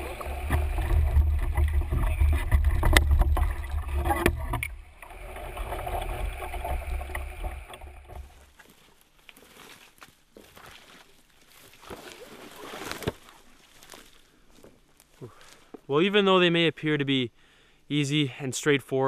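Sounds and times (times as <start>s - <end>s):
canoe paddle in water: 0.0s - 8.8s, 10.4s - 14.1s.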